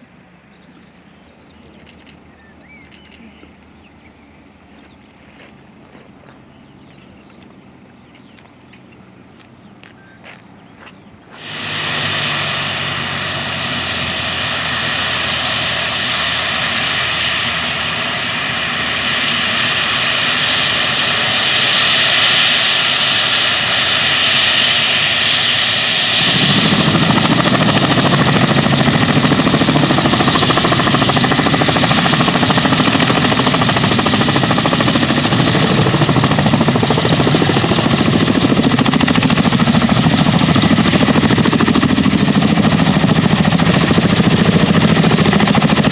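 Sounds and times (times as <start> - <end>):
helicopter engines and rotors: 0.0 - 45.9
heavy low rotor sound: 11.1 - 45.9
thin rising whistles: 11.4 - 39.5.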